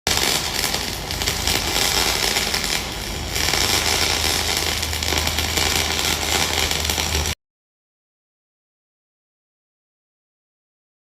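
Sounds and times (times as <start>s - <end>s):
welding arc crackling and sizzling: 0.0s - 7.4s
steady low hum: 0.1s - 7.4s.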